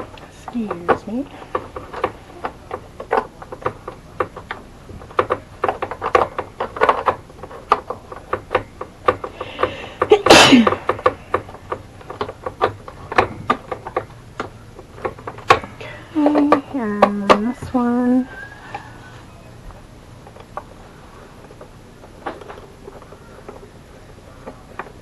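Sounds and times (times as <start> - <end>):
person sneezing: 10.2 - 10.8.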